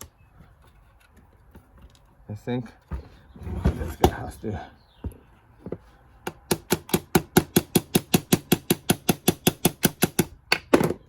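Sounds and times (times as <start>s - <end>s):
rapid tapping on metal parts: 6.3s - 11.0s.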